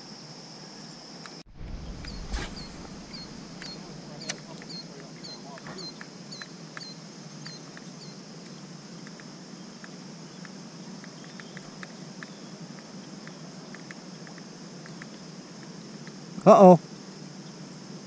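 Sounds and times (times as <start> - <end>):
steady outdoor hiss: 0.0 - 18.0
small bird chirping: 1.6 - 8.2
faint ticks: 5.5 - 16.2.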